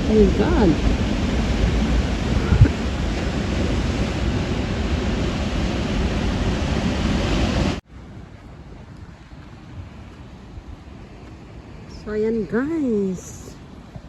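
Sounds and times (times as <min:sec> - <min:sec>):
surf crashing on shore: 0:00.0 - 0:08.8
wind on microphone: 0:00.0 - 0:14.0.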